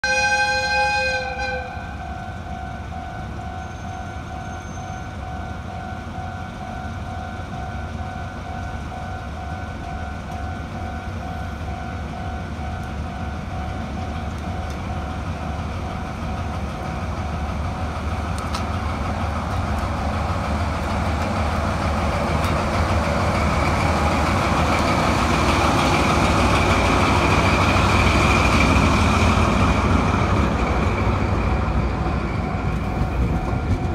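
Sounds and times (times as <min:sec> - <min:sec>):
locomotive horn blast: 0:00.0 - 0:02.0
diesel locomotive engine: 0:00.0 - 0:33.9
high wheel squeal: 0:03.6 - 0:05.2.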